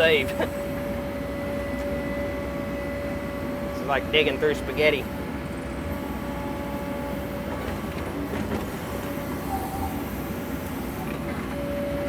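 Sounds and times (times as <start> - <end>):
excavator engine and hydraulics: 0.0 - 12.0.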